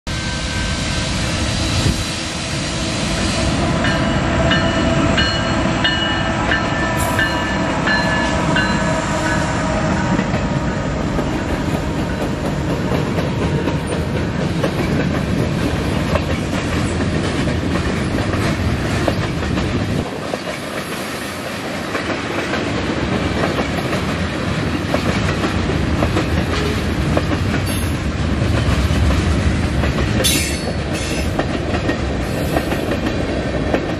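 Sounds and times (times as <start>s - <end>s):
freight train locomotives rumbling: 0.1s - 33.9s
train wheels clacking over rail joints: 11.1s - 33.9s.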